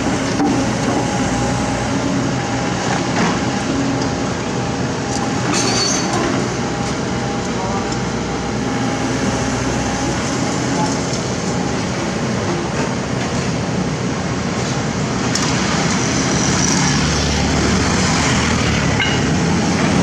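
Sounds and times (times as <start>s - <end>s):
excavator diesel engine working: 0.0s - 20.0s
rumbling and clanking: 18.3s - 20.0s.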